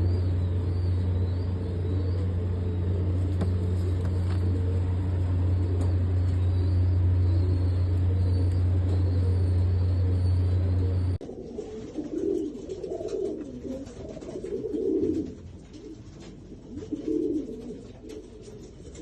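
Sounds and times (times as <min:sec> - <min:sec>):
steady low rumble: 0:00.0 - 0:11.3.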